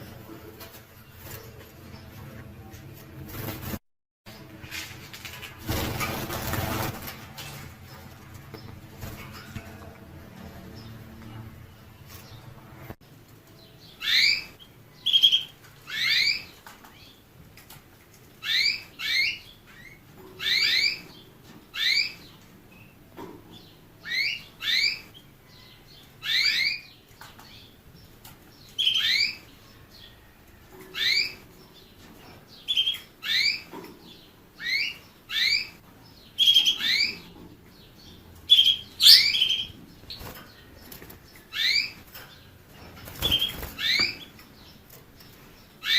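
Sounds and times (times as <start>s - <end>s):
finch chirping: 13.8s - 17.2s, 28.5s - 30.1s, 30.9s - 45.9s.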